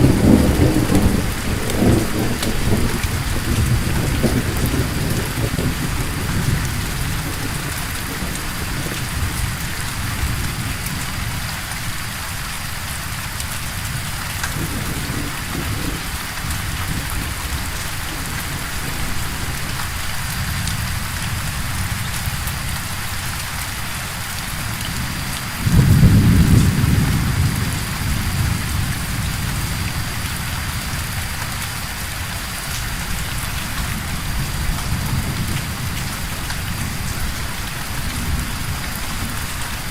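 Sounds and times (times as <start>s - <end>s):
rolling thunder: 0.0s - 11.4s, 14.0s - 22.5s, 25.0s - 31.1s
steady rain: 0.0s - 39.9s.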